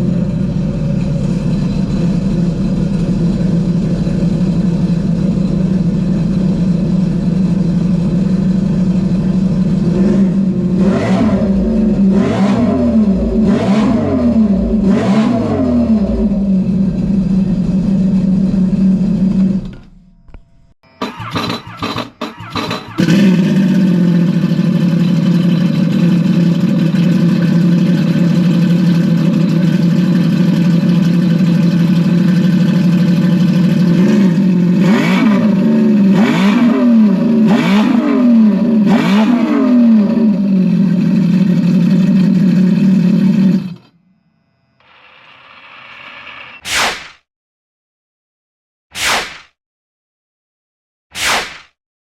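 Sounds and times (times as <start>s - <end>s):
jet ski engine idling and revving: 0.0s - 19.7s, 21.1s - 43.9s
short whoosh: 46.6s - 47.2s, 49.0s - 49.6s, 51.2s - 51.8s.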